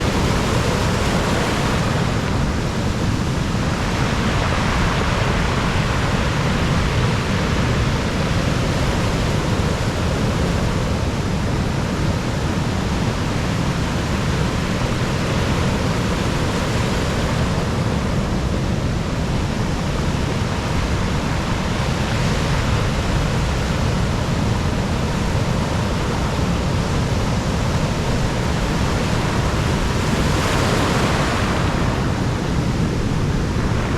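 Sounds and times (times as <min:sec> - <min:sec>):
surf breaking on shore: 0:00.0 - 0:33.9
wind rumbling on microphone: 0:00.0 - 0:33.9.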